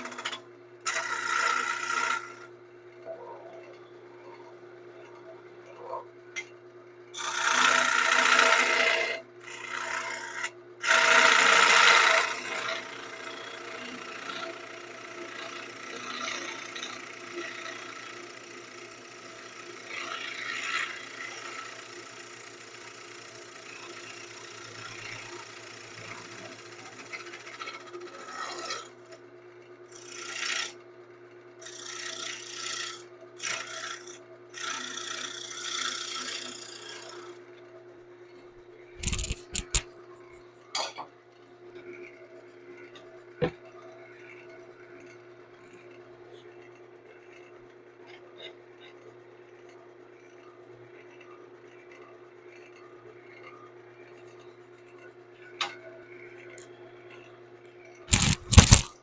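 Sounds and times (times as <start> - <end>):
turning tool cutting wood: 0.0 - 2.5, 7.2 - 29.0, 29.9 - 30.8, 31.6 - 37.4, 39.0 - 39.8, 58.1 - 59.0
wood lathe motor hum: 0.0 - 6.0, 7.2 - 29.2, 29.9 - 30.9, 31.6 - 37.6, 39.0 - 39.8.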